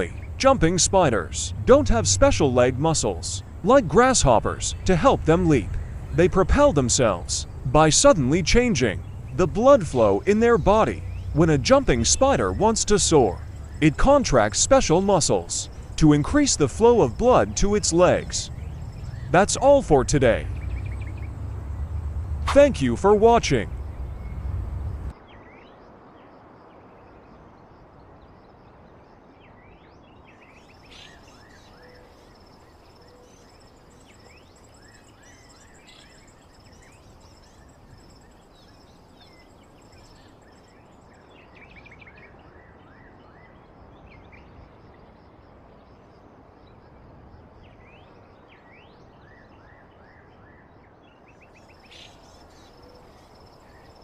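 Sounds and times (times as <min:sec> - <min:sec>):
bird chirps: 0:00.0 - 0:25.8, 0:30.4 - 0:44.4, 0:51.2 - 0:54.0
low background hiss: 0:00.0 - 0:50.1, 0:50.8 - 0:54.0.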